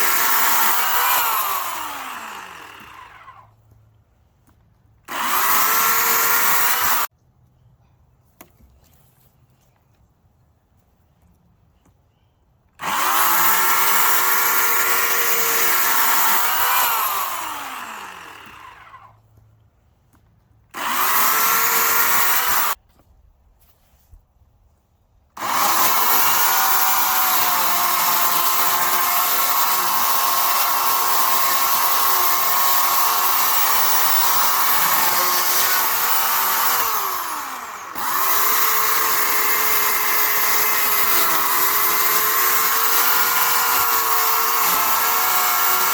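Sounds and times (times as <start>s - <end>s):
electric chainsaw motor whining: 0.0s - 3.5s, 5.1s - 7.1s, 12.8s - 19.1s, 20.7s - 22.8s, 25.4s - 45.9s.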